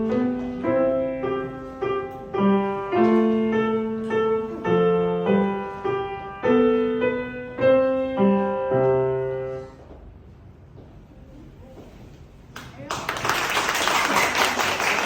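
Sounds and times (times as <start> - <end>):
piano chords: 0.0 - 9.9.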